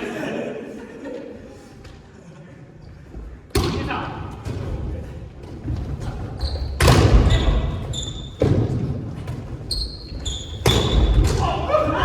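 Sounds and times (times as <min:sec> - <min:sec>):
short high squeaks: 0:09.7 - 0:11.0.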